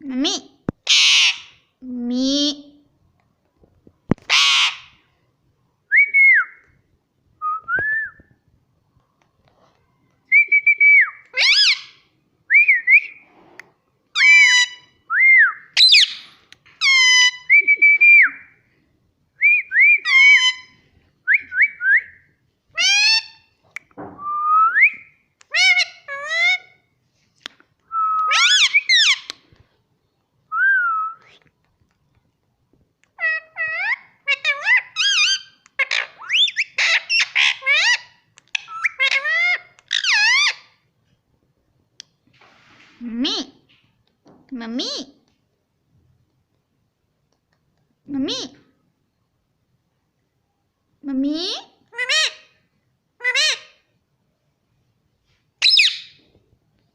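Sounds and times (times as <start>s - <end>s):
parakeet harsh squawk: 0.8s - 1.6s, 4.3s - 5.0s, 11.4s - 12.0s, 33.2s - 40.7s, 53.2s - 53.8s, 55.6s - 56.2s
parakeet whistled chirps: 55.6s - 56.2s.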